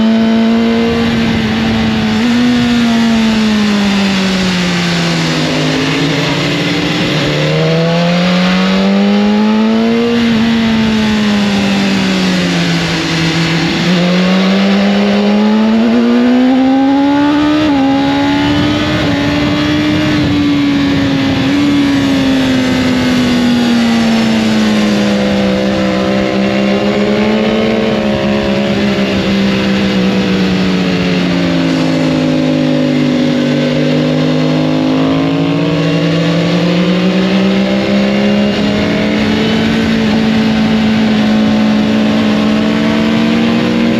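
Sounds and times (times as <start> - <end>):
motorcycle engine revving: 0.0 - 43.9
steady rush of noise: 0.0 - 43.9.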